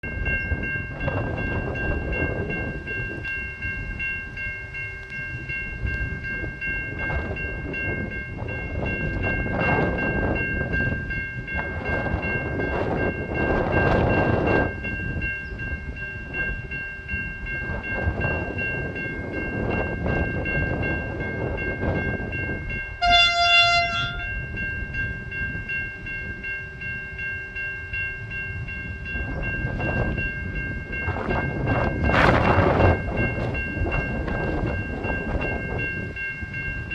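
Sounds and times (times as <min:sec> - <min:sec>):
diesel train rumbling: 0:00.0 - 0:36.9
high ringing tones: 0:00.0 - 0:36.9
train horn blast: 0:23.0 - 0:24.4.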